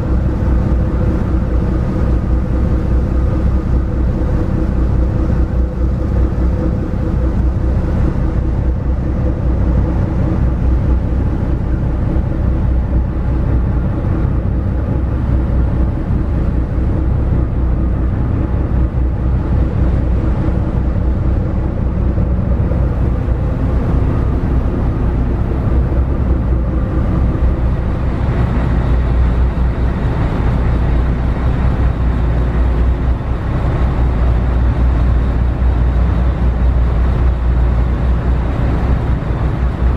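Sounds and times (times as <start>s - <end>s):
constant rushing noise: 0.0s - 39.9s
ship engines droning: 0.0s - 39.9s.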